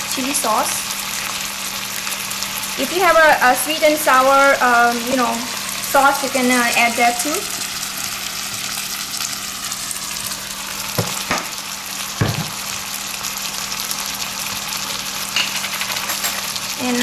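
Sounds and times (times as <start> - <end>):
food sizzling in a frying pan: 0.0 - 17.0.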